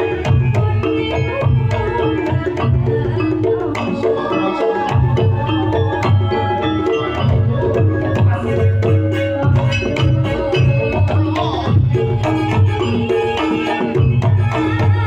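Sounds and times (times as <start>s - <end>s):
hand drums beating: 0.0s - 15.0s
sustained melody instruments: 0.0s - 15.0s.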